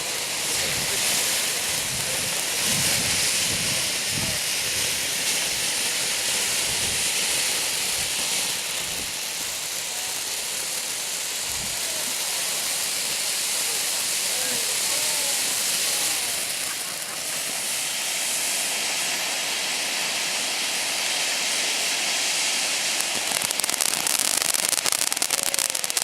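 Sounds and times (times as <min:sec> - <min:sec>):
firework hissing sparks: 0:00.0 - 0:26.0.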